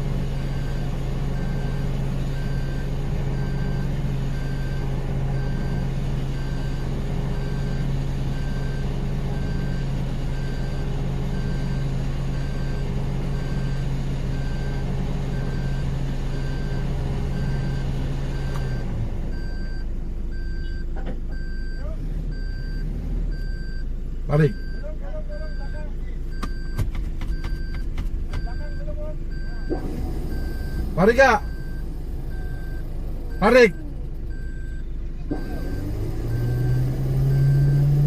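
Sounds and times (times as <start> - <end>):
regular high beeping: 24.4 - 38.0.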